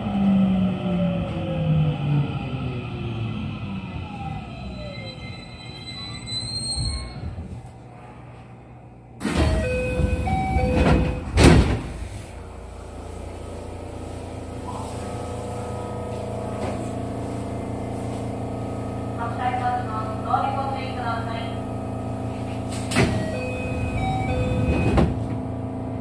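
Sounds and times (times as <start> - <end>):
train car steady hum: 0.0 - 26.0
train motor whine: 9.2 - 20.4, 21.0 - 26.0
stepped door chime: 9.3 - 11.4, 23.0 - 25.2.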